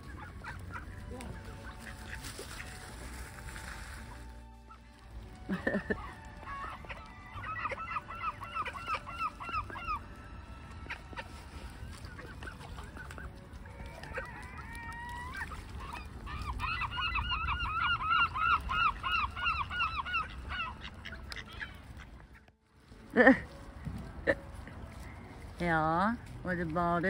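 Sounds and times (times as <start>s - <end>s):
bird whistling calls: 15.2s - 21.8s.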